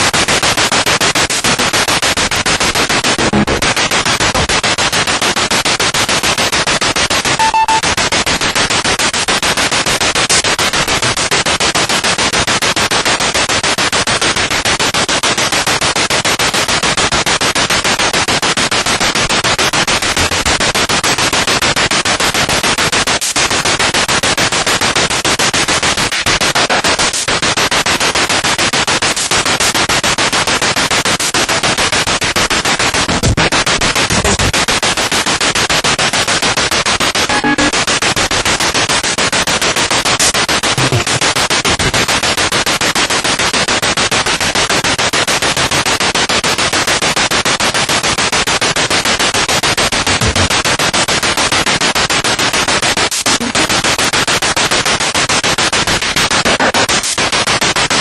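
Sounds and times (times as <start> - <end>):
pulsing radio static: 2.8 - 4.8, 7.2 - 8.2, 31.4 - 35.2, 37.0 - 38.3, 40.0 - 42.4, 50.2 - 50.5, 53.3 - 53.7
radio tone fragment: 7.4 - 8.0, 37.2 - 37.8, 40.8 - 42.0.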